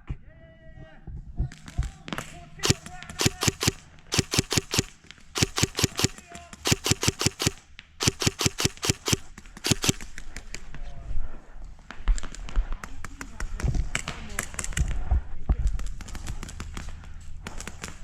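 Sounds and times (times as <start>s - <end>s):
airsoft guns firing: 2.6s - 10.0s.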